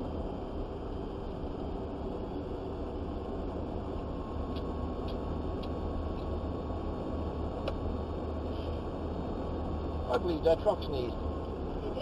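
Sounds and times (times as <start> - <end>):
truck engine and road rumble: 0.0 - 12.0.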